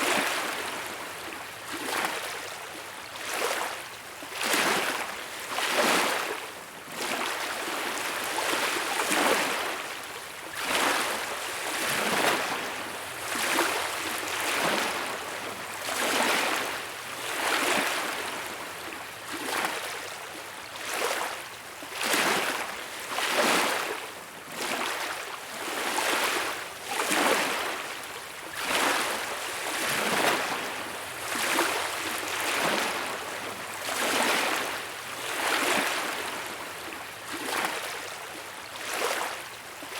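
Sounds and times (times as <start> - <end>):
small waves washing on beach: 0.0 - 39.9.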